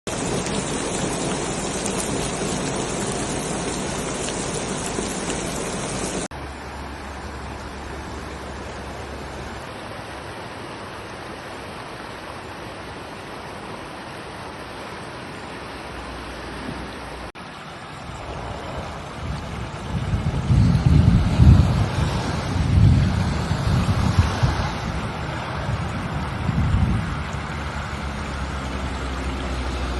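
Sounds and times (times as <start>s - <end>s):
heavy rain: 0.0s - 29.9s
wind rumble on microphone: 18.0s - 29.9s.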